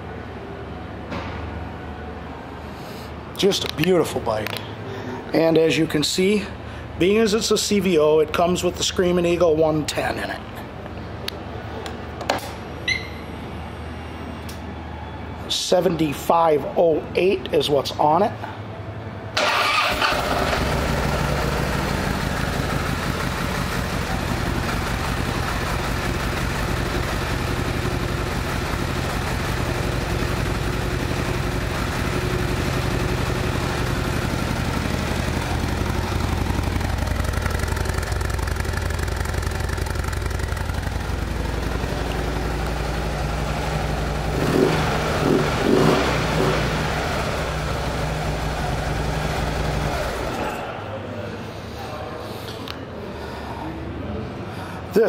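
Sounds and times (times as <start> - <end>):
motorcycle engine starting and idling: 19.3 - 50.6
motorcycle throttle blips: 19.4 - 50.4.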